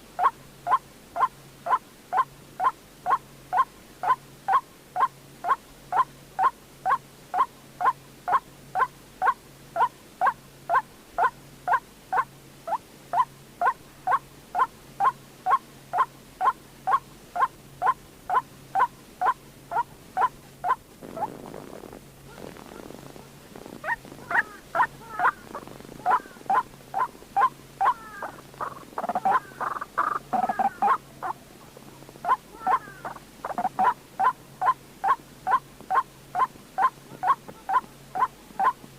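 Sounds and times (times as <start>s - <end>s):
bird calling harsh notes: 23.8s - 31.4s.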